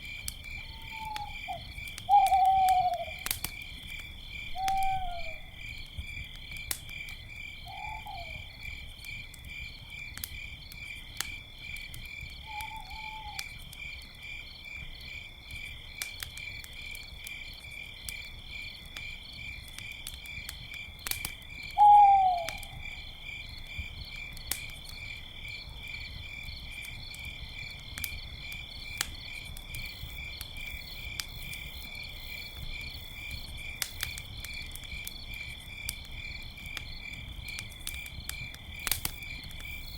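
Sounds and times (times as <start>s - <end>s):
campfire crackling: 0.0s - 39.9s
crickets chirping: 0.0s - 39.9s
owl hooting: 0.6s - 3.2s, 4.6s - 5.5s, 7.6s - 8.5s, 12.5s - 13.4s, 21.8s - 22.8s.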